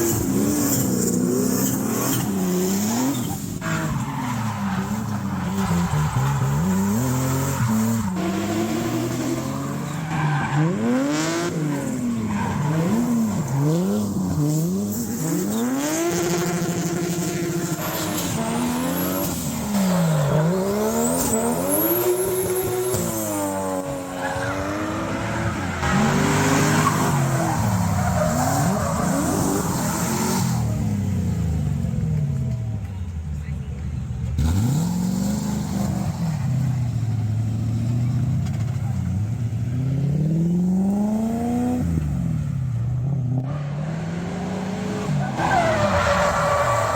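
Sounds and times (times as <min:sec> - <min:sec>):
tyres squealing and skidding: 0:00.0 - 0:30.9, 0:44.6 - 0:46.9
car engines revving hard: 0:00.0 - 0:46.9.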